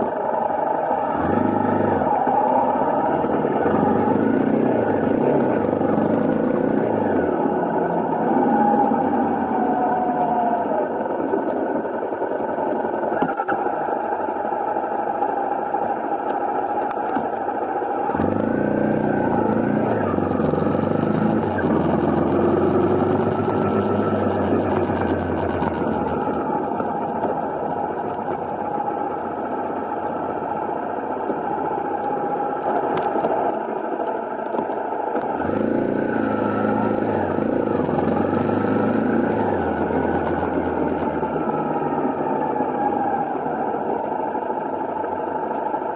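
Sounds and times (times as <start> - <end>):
motorcycle engine revving: 0.0 - 11.0, 18.0 - 31.5, 35.3 - 43.9.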